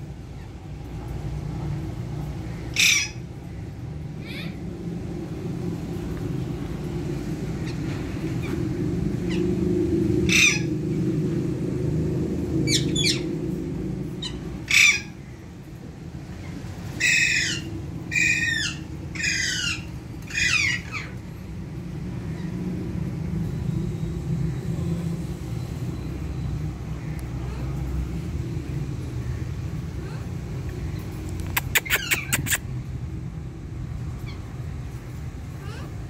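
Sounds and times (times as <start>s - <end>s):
parrot squawking: 2.7s - 3.2s, 4.2s - 4.6s, 10.3s - 10.7s, 14.2s - 15.2s, 17.0s - 21.2s, 31.4s - 32.7s.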